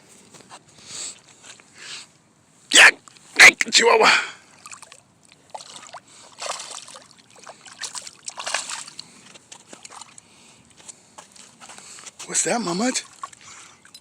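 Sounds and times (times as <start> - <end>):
water sloshing and splashing: 4.4 - 14.0.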